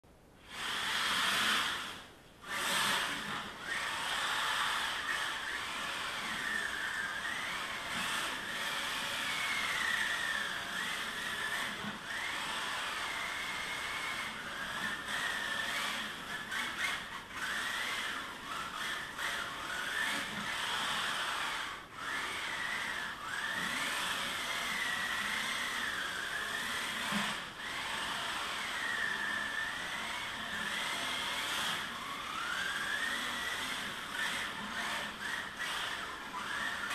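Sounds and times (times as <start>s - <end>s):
toy car electric motor whining: 0.4s - 36.9s.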